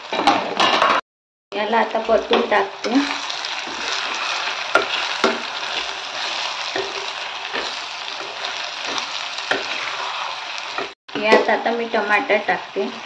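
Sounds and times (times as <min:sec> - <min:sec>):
food sizzling in hot oil: 0:01.9 - 0:13.0
metal spatula scraping pan: 0:02.9 - 0:11.0.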